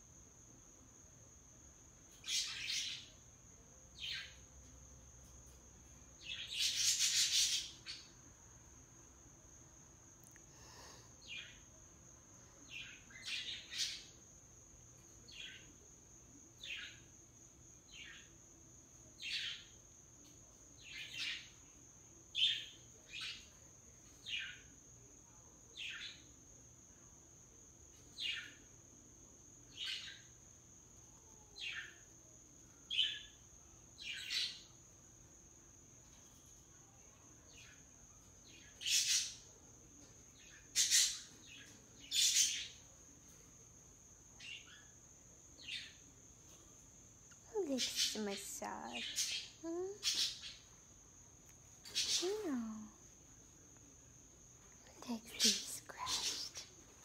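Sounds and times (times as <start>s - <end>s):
parrot chirping: 6.2s - 8.1s, 38.5s - 39.5s, 40.4s - 42.8s, 47.5s - 50.8s.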